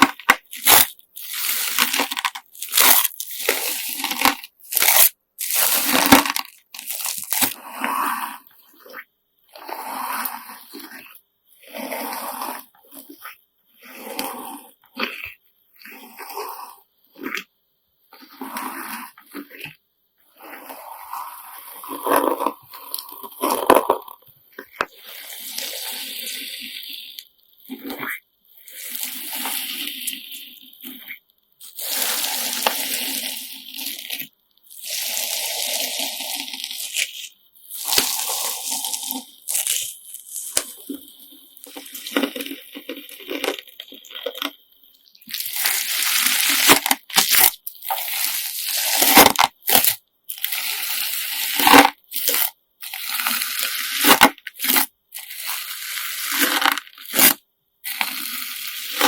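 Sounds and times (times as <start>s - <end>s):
slime squeezed by hand crackling: 0.0s - 7.6s, 36.0s - 41.0s, 45.2s - 49.9s.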